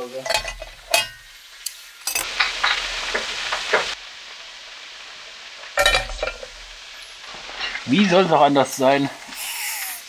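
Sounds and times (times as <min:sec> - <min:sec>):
pan or utensil clatter: 0:00.0 - 0:04.0, 0:05.8 - 0:08.0
sausages sizzling in a frying pan: 0:00.0 - 0:10.0.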